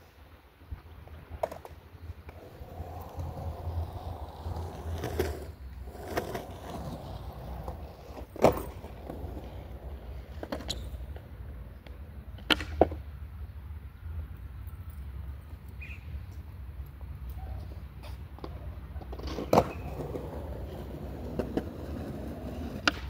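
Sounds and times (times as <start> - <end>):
skateboard wheels rumbling: 0.6 - 13.2, 14.9 - 23.0
skateboard clacking on ground: 1.0 - 13.1, 17.6 - 23.0.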